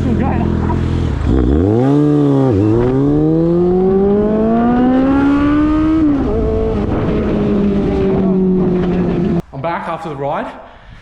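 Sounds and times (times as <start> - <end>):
motorcycle engine accelerating: 0.0 - 9.4
wind noise: 1.1 - 9.5, 10.7 - 11.0.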